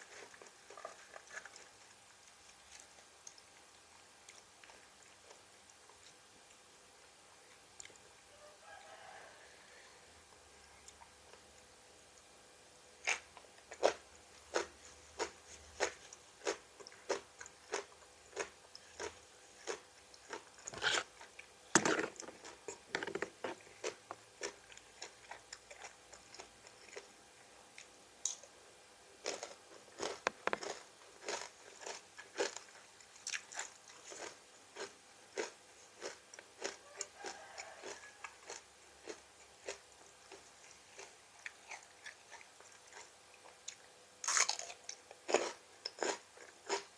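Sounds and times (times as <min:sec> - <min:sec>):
crunching raw vegetables: 0:29.2 - 0:46.9.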